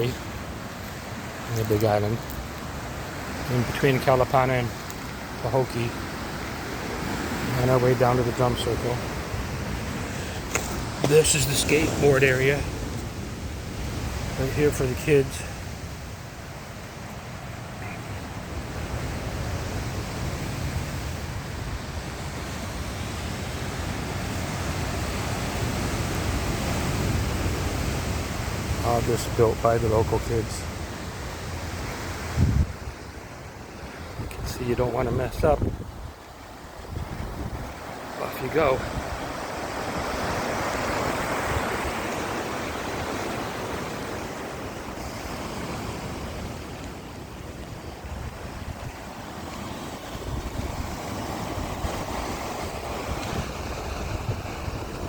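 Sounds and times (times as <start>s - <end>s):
ocean surf: 0.0s - 55.0s
wind: 0.0s - 55.0s
wind rumble on microphone: 31.5s - 33.2s, 34.0s - 37.9s, 38.8s - 55.0s.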